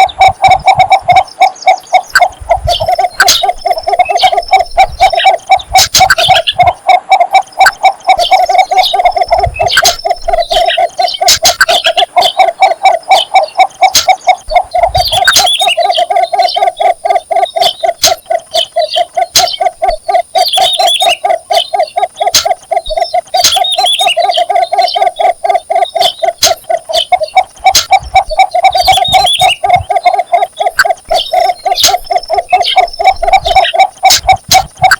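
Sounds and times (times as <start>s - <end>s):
bird low repeated call: 0.0s - 34.9s
higher bird chirps: 0.0s - 34.9s.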